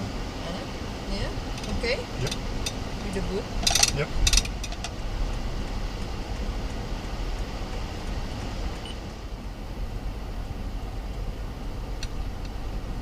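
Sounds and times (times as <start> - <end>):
car engine rumble: 0.0 - 13.0
road noise: 0.0 - 13.0
sharp clicks and knocks: 3.6 - 5.0.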